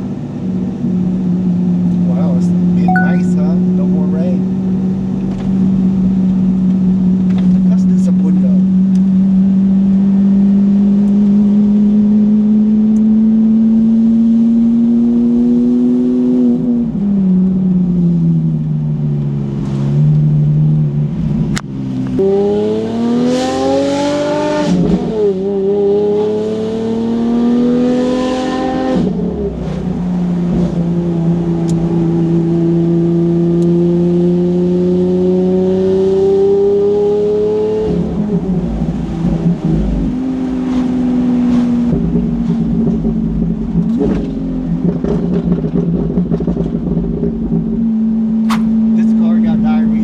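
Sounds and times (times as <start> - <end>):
car engine accelerating: 0.0 - 50.0.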